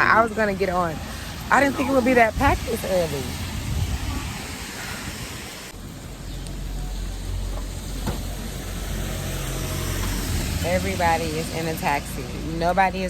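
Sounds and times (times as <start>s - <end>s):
traffic rumble: 0.0s - 13.0s
light rain falling: 1.0s - 10.6s.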